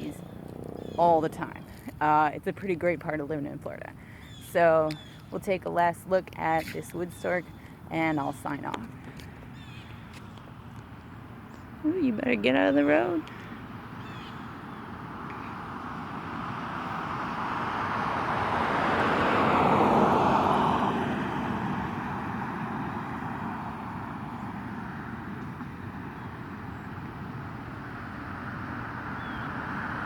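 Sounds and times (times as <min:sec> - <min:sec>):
car driving past: 0:13.4 - 0:30.0.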